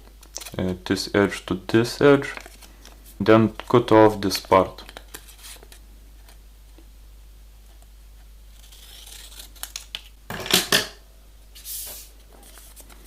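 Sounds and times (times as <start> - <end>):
faint paper handling: 2.1 - 6.4, 11.6 - 13.0
paper rustling: 2.1 - 6.4, 11.6 - 13.0
scissors snipping paper: 8.6 - 10.0.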